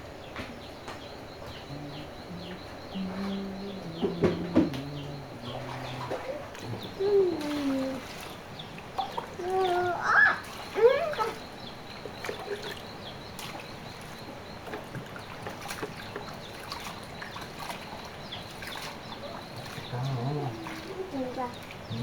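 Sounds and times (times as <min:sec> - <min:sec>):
stream water trickling: 0:00.8 - 0:22.0
small clicks and splashes: 0:05.6 - 0:22.0.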